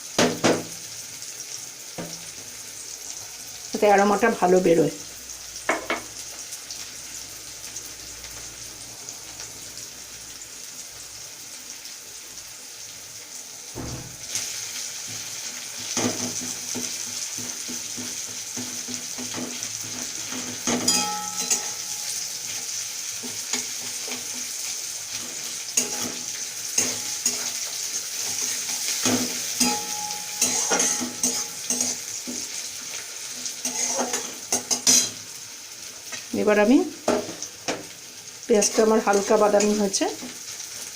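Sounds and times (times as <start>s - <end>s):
onion sizzling in oil: 0.0s - 40.9s
spatula scraping a pan: 15.8s - 35.2s.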